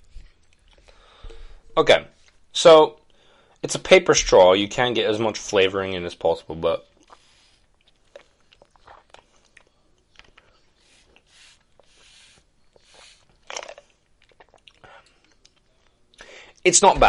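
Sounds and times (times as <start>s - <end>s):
sipping through a straw: 10.4s - 14.5s.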